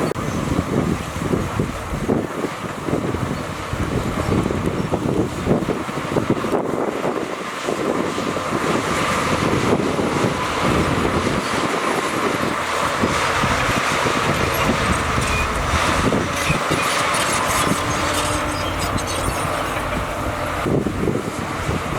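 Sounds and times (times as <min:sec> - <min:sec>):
diesel engine under load: 0:00.0 - 0:21.9
machinery rattling and clatter: 0:09.6 - 0:21.9.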